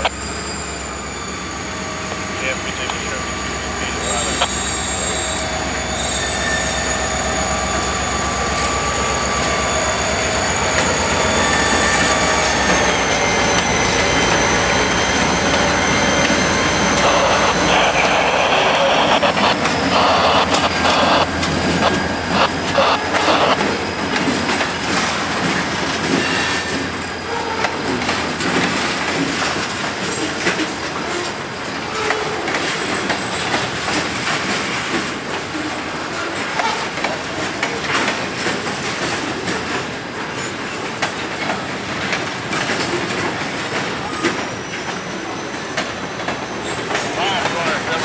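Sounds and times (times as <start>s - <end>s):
high wheel squeal: 0.0s - 27.9s
locomotive engine rumble: 6.7s - 26.2s
wheels clattering over rail joints: 23.8s - 48.0s.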